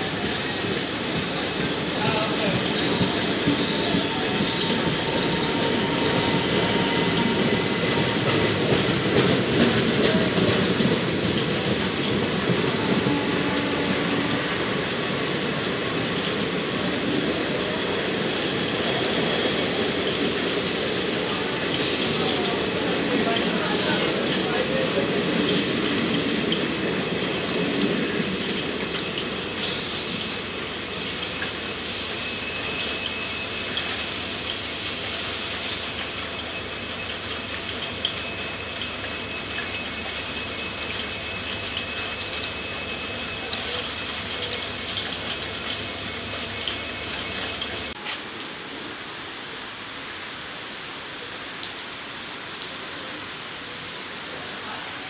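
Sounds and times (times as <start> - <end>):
heavy rain hiss: 0.0 - 37.9, 47.8 - 55.0
train coaches rumbling past: 0.0 - 49.6.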